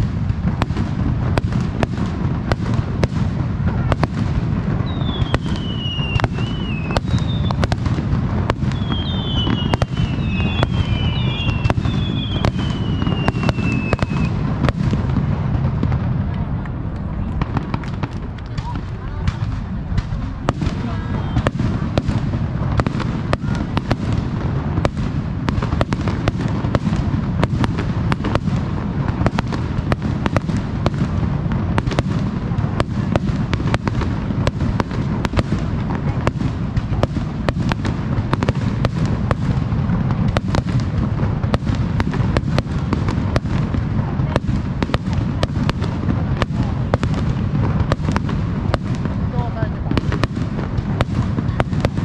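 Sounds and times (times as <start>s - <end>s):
firework bangs and crackles: 0.0s - 52.0s.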